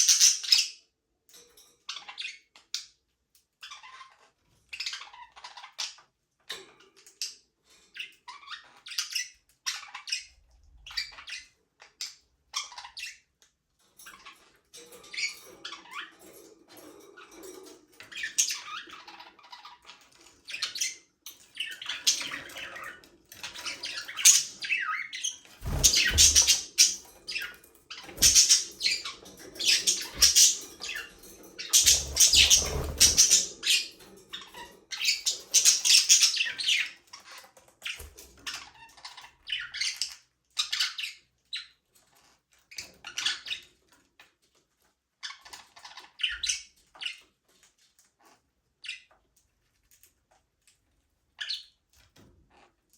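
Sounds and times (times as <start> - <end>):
budgerigars chirping and squawking: 0.0 - 0.7, 1.8 - 2.9, 3.6 - 13.3, 14.0 - 41.8, 42.7 - 43.7, 45.2 - 47.3.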